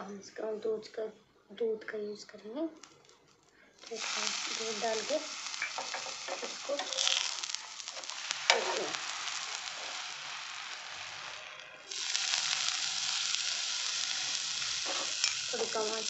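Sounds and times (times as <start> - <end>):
bread sizzling on a griddle: 3.8 - 16.0.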